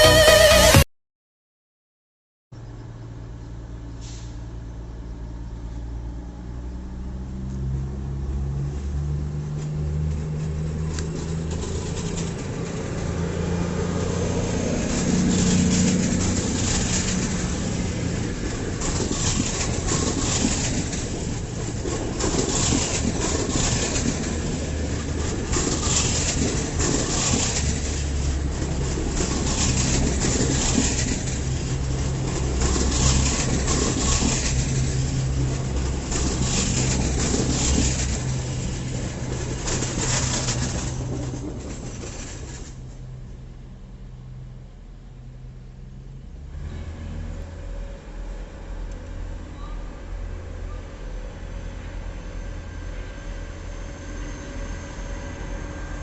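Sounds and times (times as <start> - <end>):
diesel train engine drone: 0.0 - 0.8, 2.6 - 56.0
train clattering: 9.5 - 43.5.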